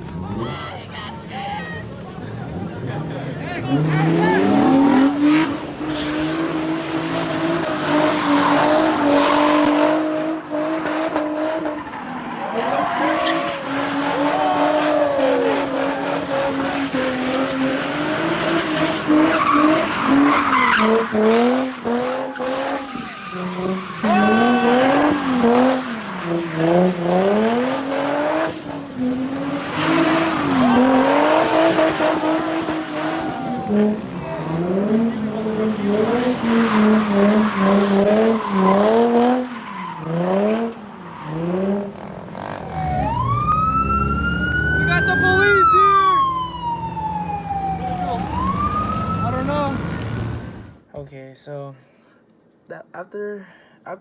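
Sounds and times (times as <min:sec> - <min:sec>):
car engine revving: 0:01.9 - 0:50.8
tyres squealing on pavement: 0:03.1 - 0:09.8, 0:11.2 - 0:28.3, 0:29.4 - 0:43.1.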